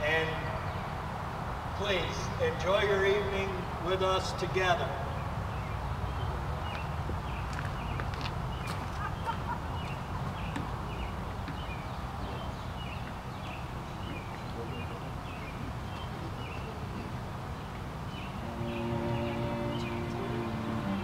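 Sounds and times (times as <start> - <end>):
bird chirping: 5.0 - 21.0.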